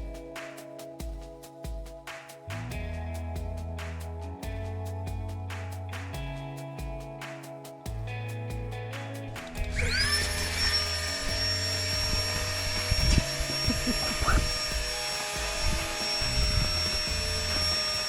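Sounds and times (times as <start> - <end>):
small motor whining: 9.6 - 18.0.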